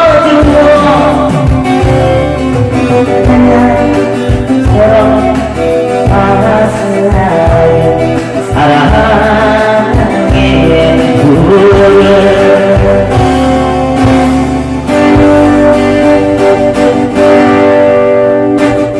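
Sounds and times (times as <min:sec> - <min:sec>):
live band playing pop song: 0:00.0 - 0:18.9.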